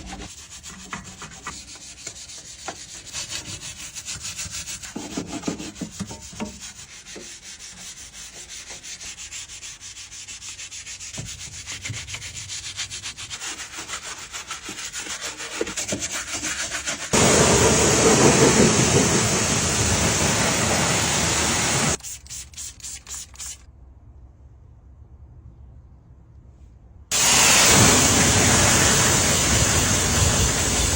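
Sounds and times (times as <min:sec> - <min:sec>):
loud rushing hiss: 0:17.2 - 0:22.0, 0:27.1 - 0:30.9.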